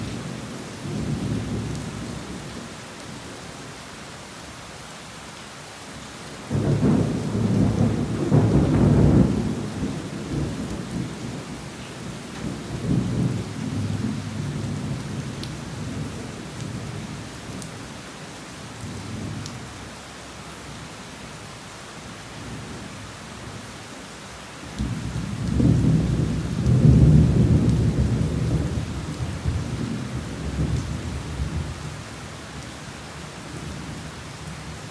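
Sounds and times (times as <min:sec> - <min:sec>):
heavy rain falling: 0:00.0 - 0:34.9
rolling thunder: 0:06.5 - 0:11.6, 0:24.8 - 0:31.8.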